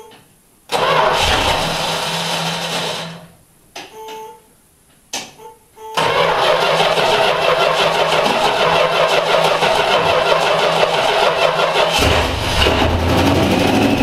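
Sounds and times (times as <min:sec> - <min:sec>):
engine running: 0:00.7 - 0:03.3, 0:06.0 - 0:14.0
engine starter cranking: 0:00.7 - 0:03.3, 0:06.0 - 0:13.1.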